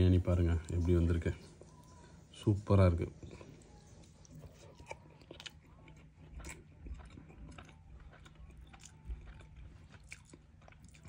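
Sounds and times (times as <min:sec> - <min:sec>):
person chewing with mouth clicks: 0:03.2 - 0:11.0.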